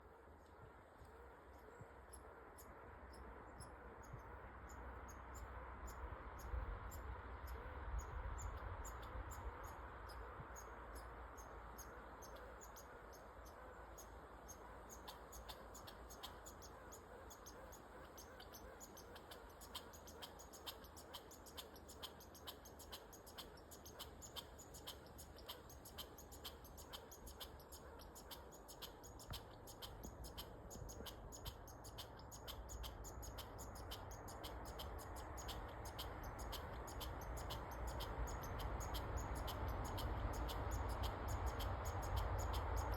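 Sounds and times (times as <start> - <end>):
squirrel chirping: 0.0 - 42.9.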